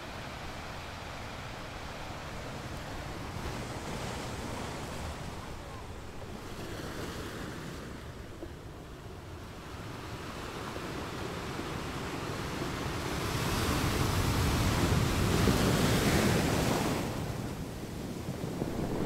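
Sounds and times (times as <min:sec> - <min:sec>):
surf breaking on beach: 0:13.4 - 0:19.0.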